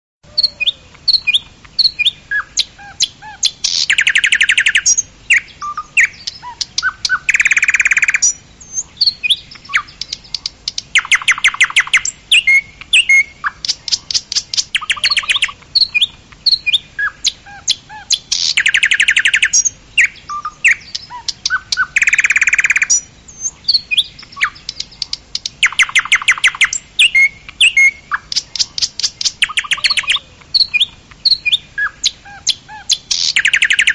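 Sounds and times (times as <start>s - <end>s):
loud fast bird trills: 0.3s - 10.4s, 11.0s - 33.9s
birds chirping and whistling: 0.3s - 33.9s.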